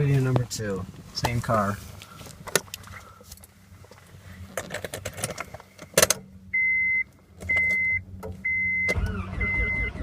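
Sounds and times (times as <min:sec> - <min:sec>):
car keys jangling: 0:04.5 - 0:06.3
dashboard warning chime beeps: 0:06.5 - 0:10.0.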